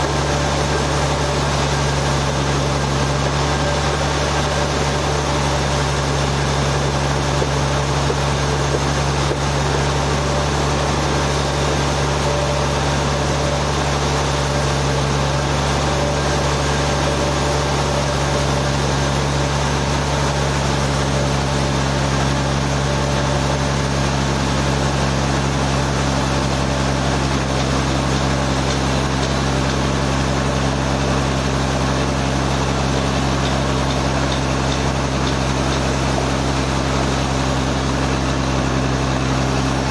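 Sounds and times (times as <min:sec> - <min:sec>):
sawmill engine humming: 0:00.0 - 0:39.9.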